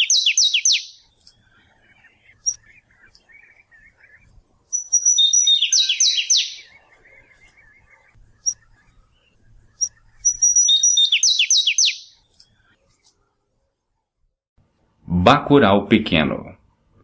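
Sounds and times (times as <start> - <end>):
warbler singing: 0.0 - 13.0.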